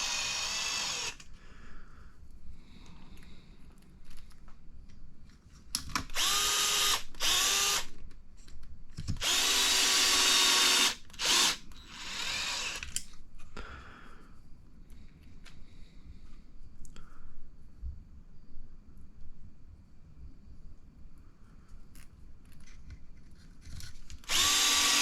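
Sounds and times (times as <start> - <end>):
electric screwdriver driving screws: 0.0 - 1.2, 6.1 - 7.9, 9.2 - 13.0, 24.2 - 25.0.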